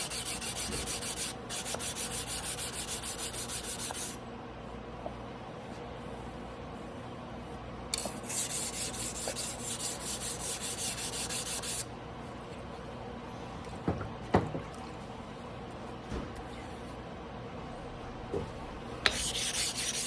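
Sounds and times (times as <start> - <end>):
knife blade scraping on whetstone: 19.1 - 20.0.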